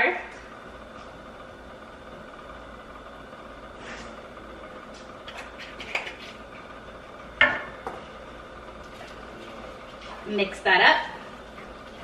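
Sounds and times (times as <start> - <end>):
faint kitchen background: 3.8 - 12.0.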